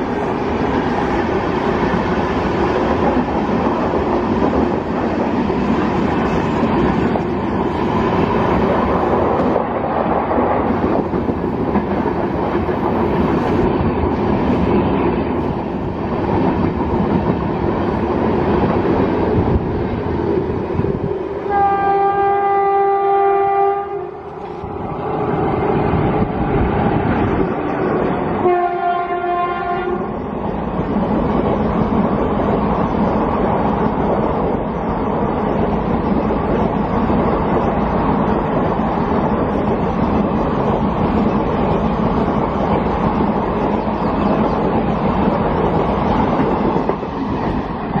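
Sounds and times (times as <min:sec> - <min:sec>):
train running on rails: 0:00.0 - 0:48.0
train horn blast: 0:21.5 - 0:24.3, 0:28.4 - 0:30.1.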